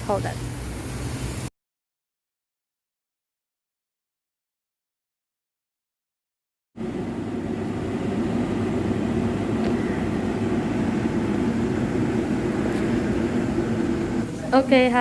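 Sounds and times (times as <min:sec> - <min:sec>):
low mechanical drone: 0:06.8 - 0:15.0.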